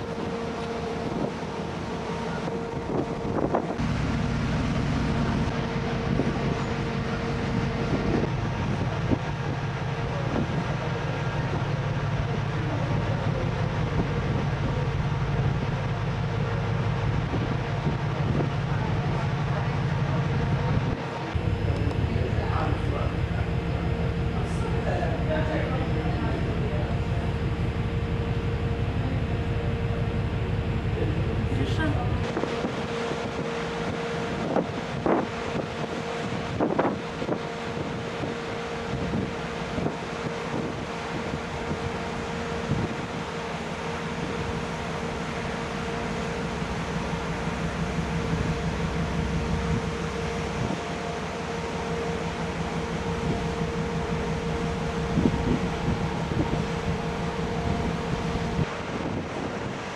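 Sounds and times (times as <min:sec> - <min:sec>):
rushing water noise: 0:00.0 - 0:59.9
ship engine hum: 0:00.0 - 0:59.9
wind buffeting microphone: 0:00.0 - 0:59.9.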